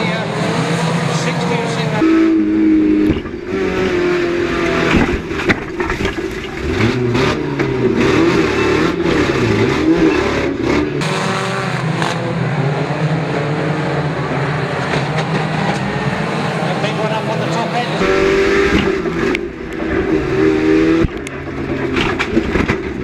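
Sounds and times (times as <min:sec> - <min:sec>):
racing car engines revving: 0:00.0 - 0:23.0.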